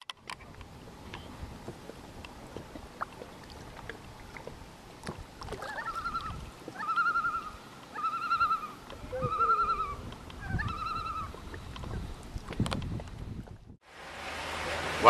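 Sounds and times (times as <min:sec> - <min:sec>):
bird trilled calls: 0:05.6 - 0:11.4.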